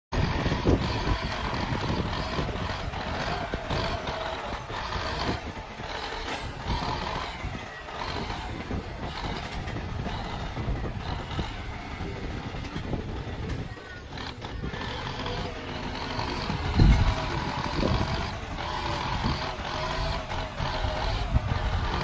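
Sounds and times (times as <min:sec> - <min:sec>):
earth-moving machinery engine running: 0:00.1 - 0:22.0
knocks and clatter: 0:04.6 - 0:08.4.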